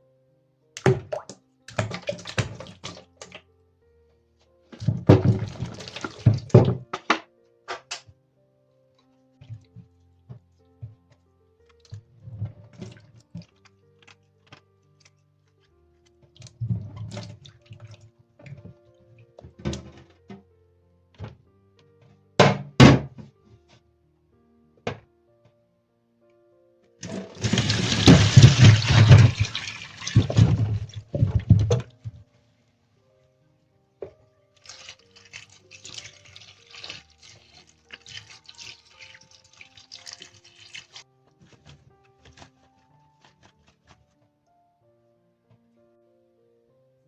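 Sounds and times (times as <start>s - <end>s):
soft background music: 0.0s - 47.0s
household thuds and knocks: 4.8s - 7.2s, 22.4s - 23.3s, 27.0s - 32.2s
water running from a tap: 5.3s - 6.7s, 27.0s - 31.7s, 34.6s - 41.0s.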